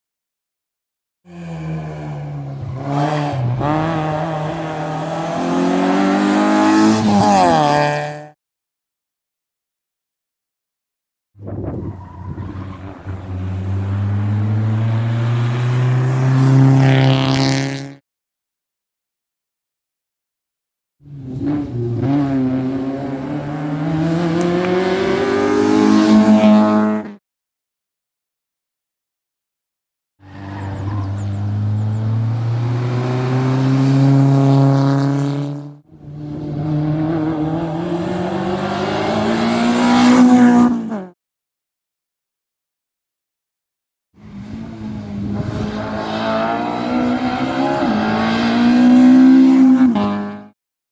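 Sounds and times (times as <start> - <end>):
rally car engine accelerating: 1.3 - 8.4, 11.4 - 18.0, 21.0 - 27.2, 30.2 - 41.1, 44.2 - 50.5.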